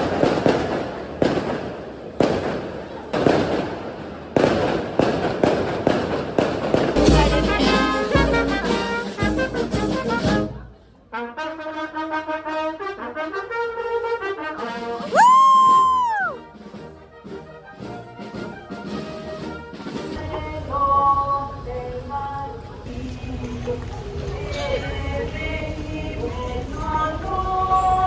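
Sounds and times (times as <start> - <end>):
firecrackers crackling: 0.0 - 10.2
brass band playing: 6.8 - 20.4
sliding brass note: 7.0 - 15.2.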